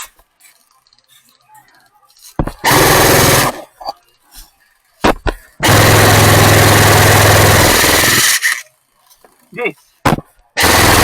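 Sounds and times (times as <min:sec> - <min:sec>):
airsoft gun firing bursts: 0:02.6 - 0:03.6, 0:05.6 - 0:08.5, 0:10.6 - 0:11.0.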